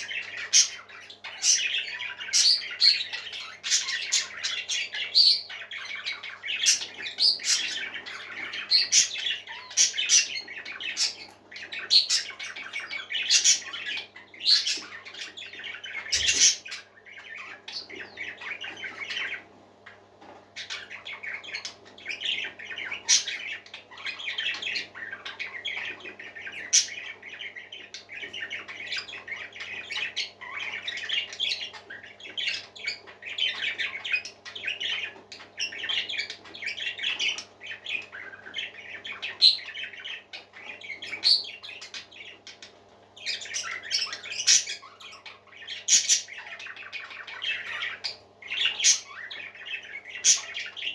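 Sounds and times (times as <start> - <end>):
parakeets chattering: 0.0 - 50.9.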